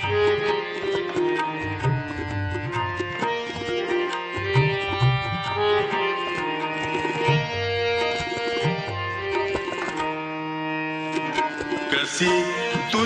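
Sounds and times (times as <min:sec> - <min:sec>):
tabla strokes: 0:00.0 - 0:10.2, 0:11.1 - 0:13.0
sustained instrument melody: 0:00.0 - 0:13.0.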